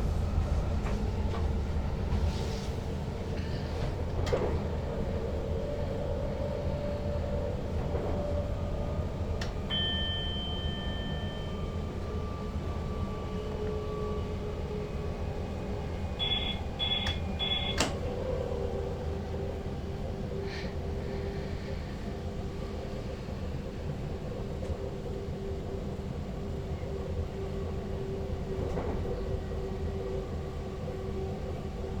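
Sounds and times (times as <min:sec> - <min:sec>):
train running low rumble: 0:00.0 - 0:32.0
short beeps: 0:09.7 - 0:11.6, 0:16.2 - 0:17.8.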